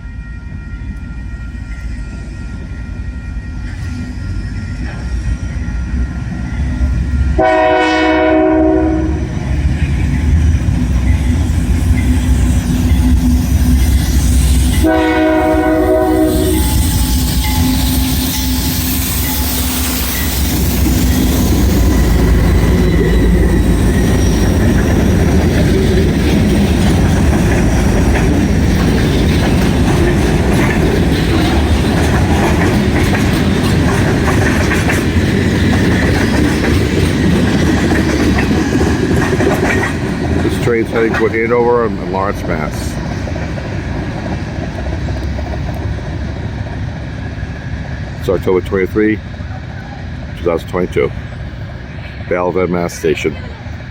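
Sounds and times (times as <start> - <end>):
locomotive engines rumbling: 0.0 - 53.9
train wheels clacking on rails: 2.1 - 51.8
train air horn blasts: 7.3 - 9.2, 14.7 - 20.1.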